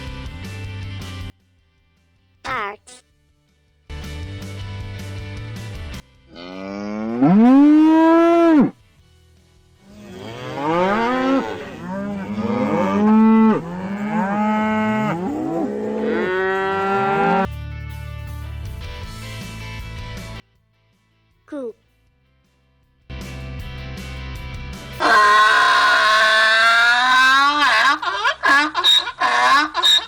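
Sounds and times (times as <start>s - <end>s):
cows mooing: 6.3s - 8.7s, 9.8s - 17.5s, 25.0s - 30.0s.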